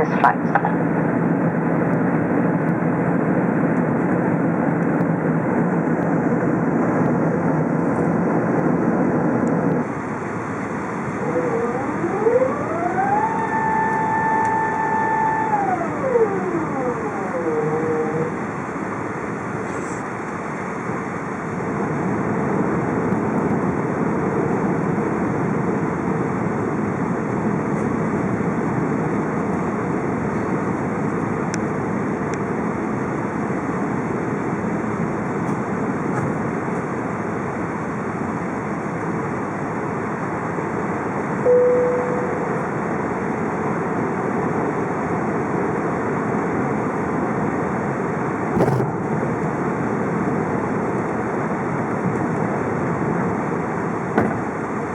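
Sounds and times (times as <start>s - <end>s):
airplane cabin engine and airflow noise: 0.0s - 54.9s
short cabin chime: 41.5s - 42.6s.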